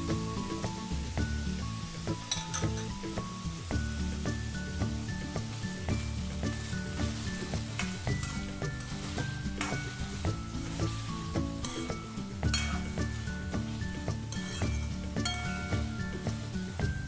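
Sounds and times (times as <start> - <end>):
background music: 0.0 - 17.0
potatoes sizzling in oil: 0.0 - 17.0
metal ladle scraping pan: 6.4 - 16.4.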